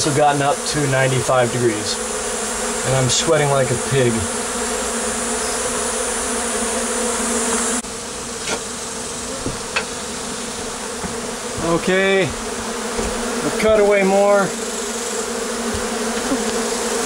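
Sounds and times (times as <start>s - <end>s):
steady hiss: 0.0s - 12.4s
bees buzzing: 0.0s - 17.0s.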